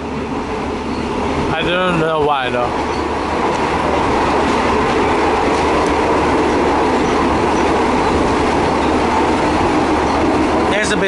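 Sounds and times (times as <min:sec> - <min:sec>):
train rumbling and rattling: 0:00.0 - 0:11.0.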